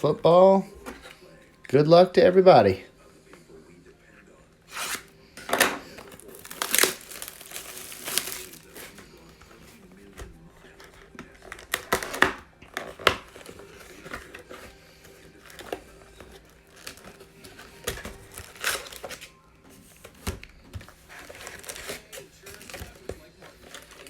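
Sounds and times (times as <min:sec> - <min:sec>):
plastic packaging crinkling and tearing: 0:04.7 - 0:05.1, 0:05.8 - 0:24.0.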